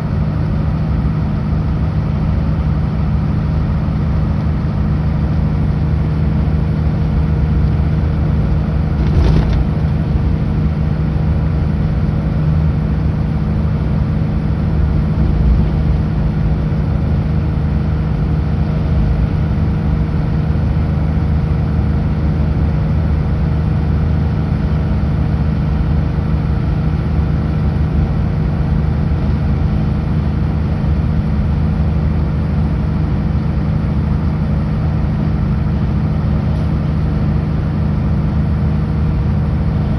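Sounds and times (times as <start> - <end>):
truck diesel engine cruising: 0.0 - 39.9
road noise: 6.2 - 20.0.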